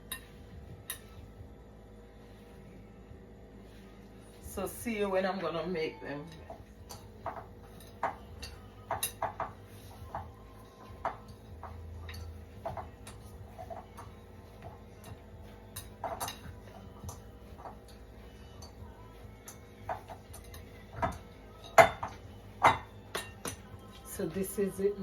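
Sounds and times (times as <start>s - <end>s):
dough being kneaded by hand: 6.3s - 24.5s
mixing bowl knocking on counter: 6.4s - 15.2s, 15.8s - 18.0s, 19.4s - 23.6s.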